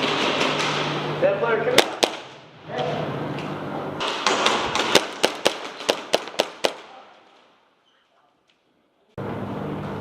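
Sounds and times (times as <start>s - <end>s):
airsoft gun shots: 1.8s - 2.4s, 4.0s - 7.0s.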